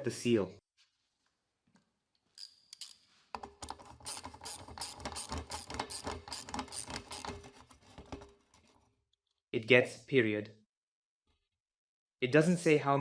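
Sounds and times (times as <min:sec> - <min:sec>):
hand tool ratcheting clicks: 0:02.4 - 0:07.7.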